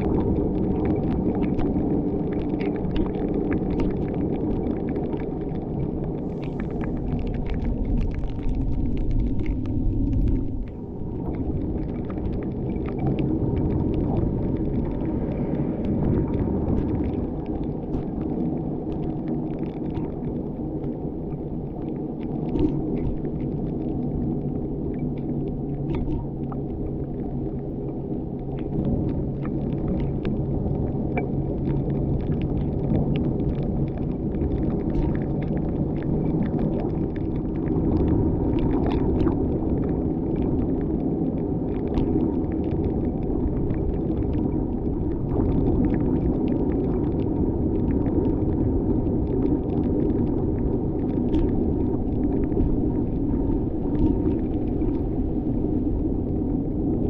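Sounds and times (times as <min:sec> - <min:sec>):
car engine and tyre rumble: 0:06.1 - 0:17.9.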